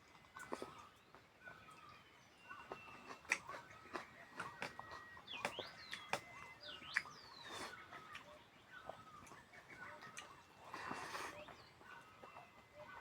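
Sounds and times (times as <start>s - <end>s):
birds chirping: 5.2s - 7.5s.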